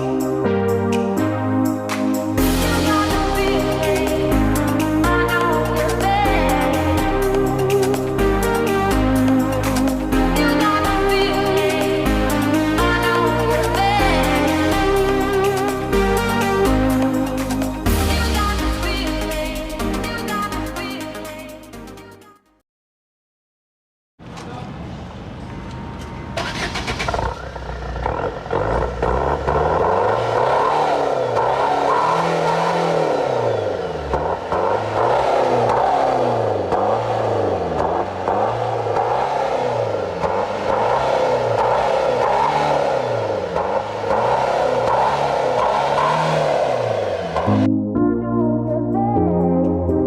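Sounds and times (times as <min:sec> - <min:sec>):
car engine revving: 0:01.9 - 0:20.5, 0:26.4 - 0:47.8.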